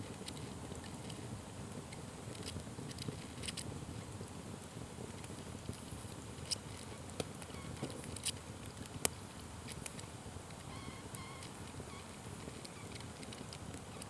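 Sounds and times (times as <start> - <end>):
fire crackling pops: 0.0 - 14.0
wood fire burning: 0.0 - 14.0.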